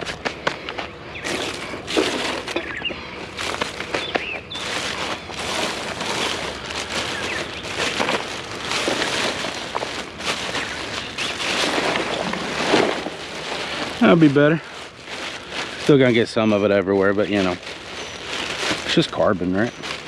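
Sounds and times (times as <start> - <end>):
metal fire pit scraping: 1.2 - 16.1
charcoal and ash tipped into bag: 3.4 - 16.3.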